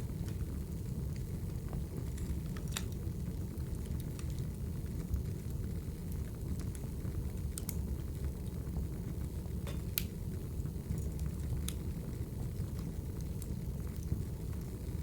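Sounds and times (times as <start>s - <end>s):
fire low rumble: 0.0s - 15.0s
wood fire crackling and popping: 0.0s - 15.0s.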